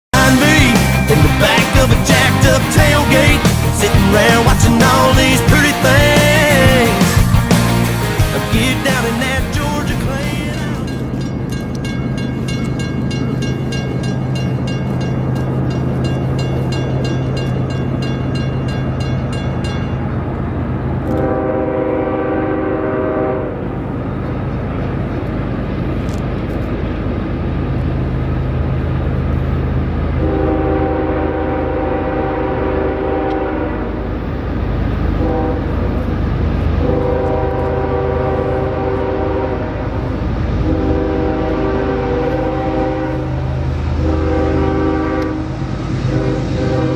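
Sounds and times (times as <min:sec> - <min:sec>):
locomotive engine drone: 0:00.1 - 0:46.9
locomotive air horn blasts: 0:21.1 - 0:23.6, 0:30.2 - 0:34.1, 0:35.2 - 0:35.8, 0:36.7 - 0:46.9.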